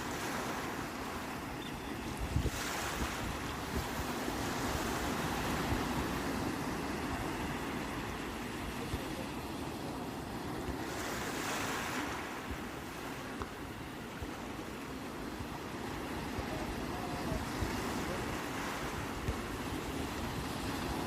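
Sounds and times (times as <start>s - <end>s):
sea waves breaking: 0.0s - 21.0s
wind rumble on microphone: 0.1s - 14.6s.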